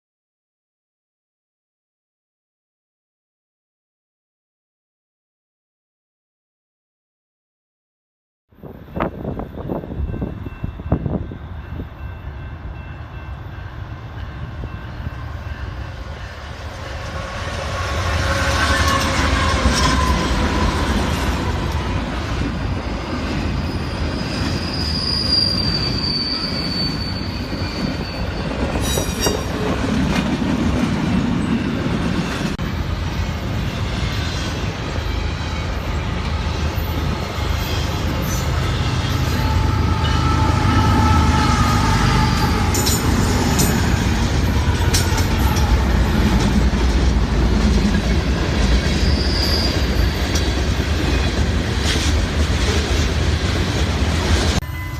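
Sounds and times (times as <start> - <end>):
high wheel squeal: 22.7 - 29.6, 33.2 - 46.5, 48.8 - 50.4
train wheels rumbling over rails: 27.1 - 54.6.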